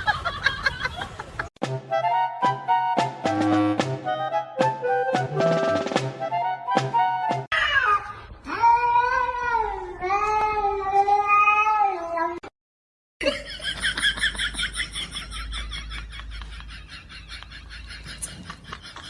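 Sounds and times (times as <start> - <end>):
cat meowing: 7.5 - 12.5.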